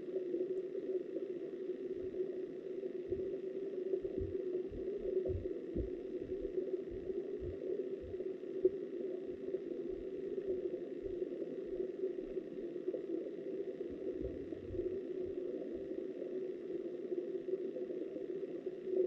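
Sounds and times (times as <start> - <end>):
muffled underwater stream rush: 0.1 - 19.0
low underwater thumps: 4.1 - 8.2.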